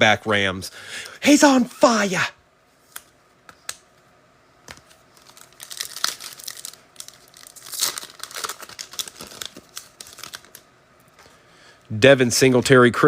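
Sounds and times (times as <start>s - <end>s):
foil wrapper tearing and crinkling: 4.8s - 10.6s.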